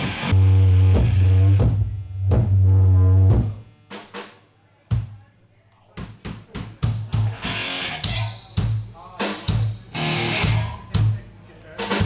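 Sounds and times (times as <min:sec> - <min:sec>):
electric guitar: 0:00.0 - 0:03.6, 0:06.9 - 0:10.8
kick drum thumps: 0:01.0 - 0:02.6, 0:04.9 - 0:05.2, 0:06.0 - 0:07.4.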